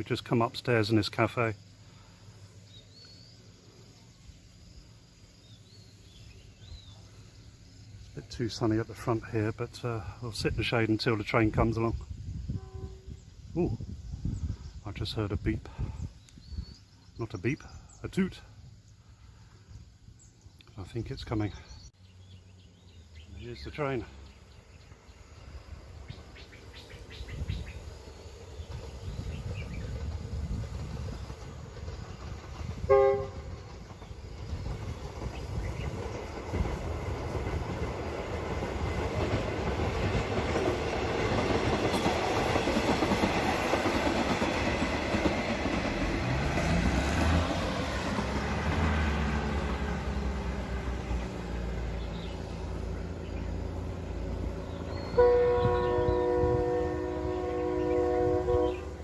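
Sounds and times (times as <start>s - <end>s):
diesel train passing: 0.0s - 16.1s, 16.8s - 59.0s
train horn blast: 12.5s - 13.3s, 32.8s - 33.6s, 54.9s - 59.0s
wheels rumbling and clattering: 28.6s - 58.9s.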